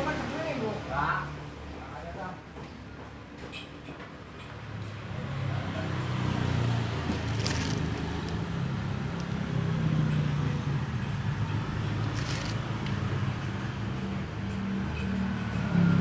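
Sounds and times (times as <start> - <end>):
motorcycle engine running: 5.4 - 15.0.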